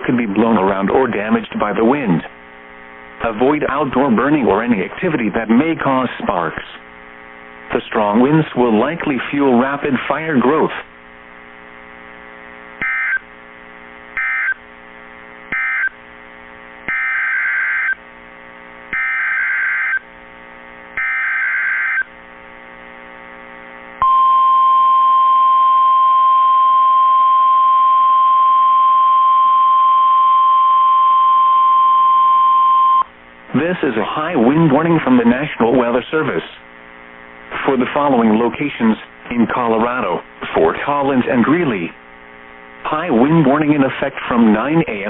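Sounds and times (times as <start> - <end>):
faint receiver hum: 0.0 - 45.0
single-pitch warning alarm tone: 12.8 - 13.2, 14.2 - 14.6, 15.5 - 16.0, 16.9 - 18.0, 18.9 - 20.1, 21.0 - 22.1, 24.0 - 33.1.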